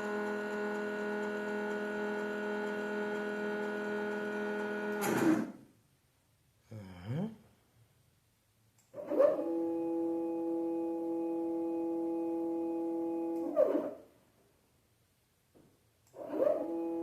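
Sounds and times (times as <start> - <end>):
stepper motor whine: 16.2 - 17.0.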